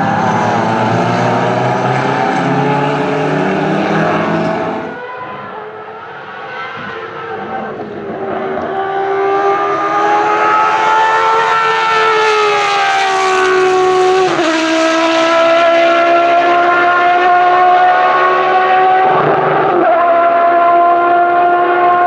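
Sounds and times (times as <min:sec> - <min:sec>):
racing car engine accelerating: 0:00.0 - 0:22.0.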